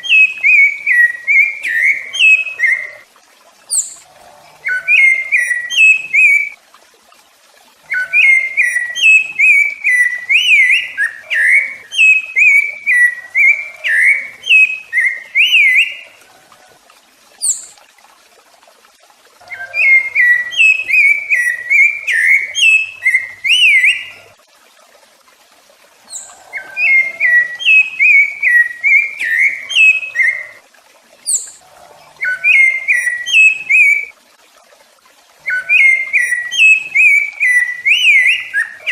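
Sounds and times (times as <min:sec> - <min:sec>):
thrush singing whistled phrases: 0:00.0 - 0:03.0, 0:04.6 - 0:06.6, 0:07.9 - 0:16.2, 0:19.4 - 0:24.2, 0:26.1 - 0:30.6, 0:32.2 - 0:34.1, 0:35.4 - 0:38.9.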